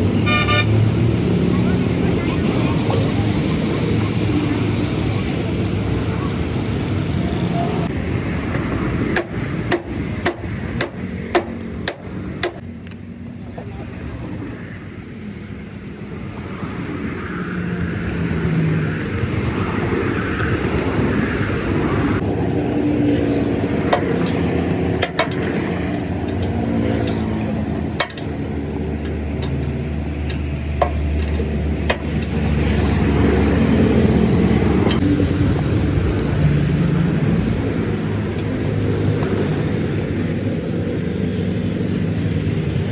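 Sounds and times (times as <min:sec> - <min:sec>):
vehicle engine rumbling: 0:00.0 - 0:42.9.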